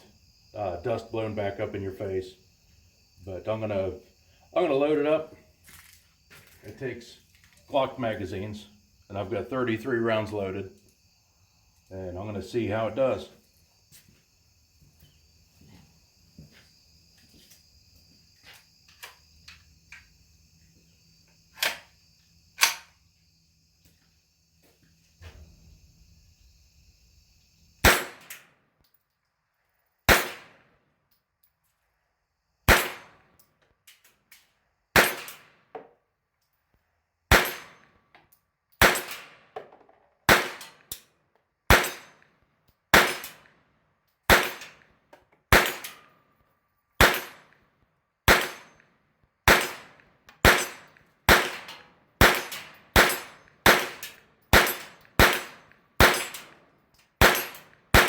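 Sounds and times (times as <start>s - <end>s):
pistol shots: 27.8s - 28.4s, 30.1s - 30.6s, 32.7s - 33.1s, 35.0s - 35.5s, 37.3s - 37.8s, 38.8s - 39.4s, 40.3s - 40.9s, 41.7s - 42.1s, 42.9s - 43.4s, 44.3s - 44.7s, 45.5s - 46.0s, 47.0s - 47.4s, 48.3s - 48.7s, 49.5s - 56.6s, 57.2s - 58.0s.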